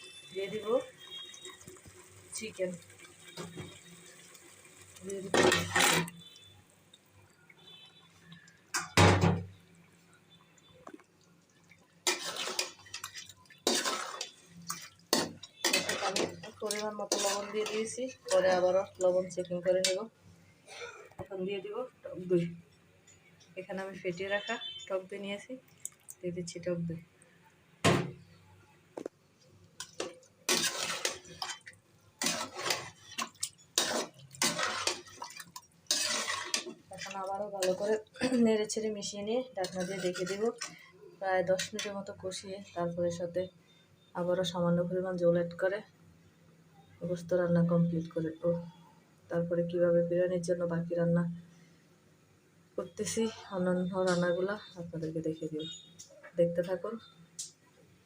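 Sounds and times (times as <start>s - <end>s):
spoon stirring and scraping pot: 0.1s - 6.5s, 12.0s - 20.1s, 29.8s - 38.1s, 39.5s - 42.1s.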